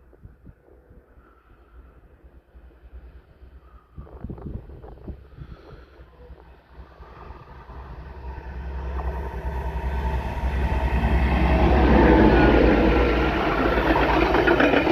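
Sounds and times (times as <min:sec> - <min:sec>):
diesel train engine droning: 0:05.9 - 0:14.9
train wheels rattling on track: 0:06.3 - 0:14.9.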